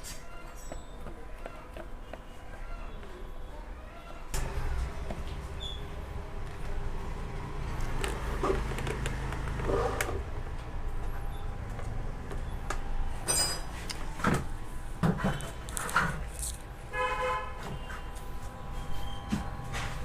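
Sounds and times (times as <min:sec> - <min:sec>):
vehicle horns tooting: 0:16.9 - 0:18.3.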